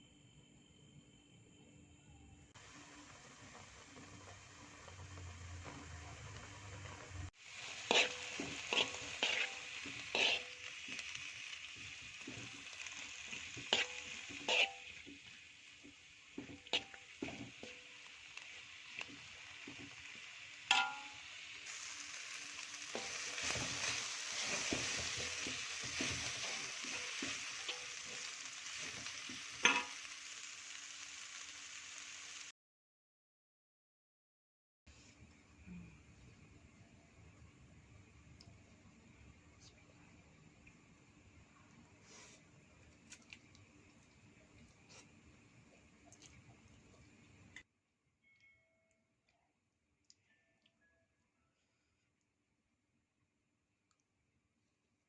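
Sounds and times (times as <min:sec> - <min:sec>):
food sizzling in a pan: 0:02.5 - 0:32.5, 0:41.4 - 0:42.4
spatula scraping a pan: 0:07.5 - 0:18.0, 0:22.6 - 0:30.0.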